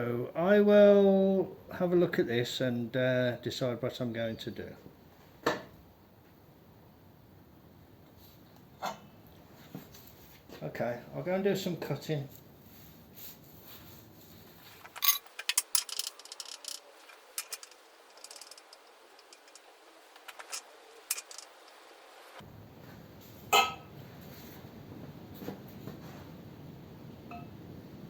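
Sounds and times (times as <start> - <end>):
metal tools clinking: 14.8 - 21.8.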